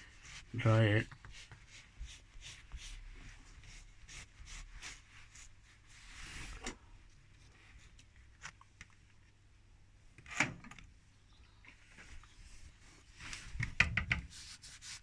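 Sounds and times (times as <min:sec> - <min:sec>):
cloth rubbing strokes: 0:00.0 - 0:06.6, 0:14.3 - 0:15.0.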